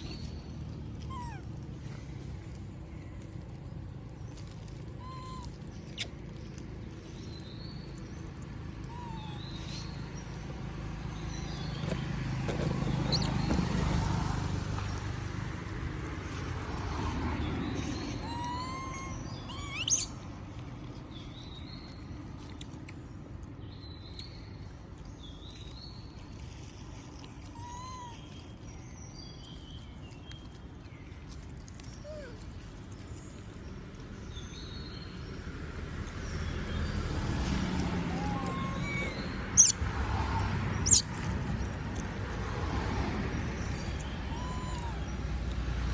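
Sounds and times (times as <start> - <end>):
sharp rising squeak: 12.6 - 13.7, 17.9 - 20.1, 38.2 - 39.8, 40.8 - 41.2.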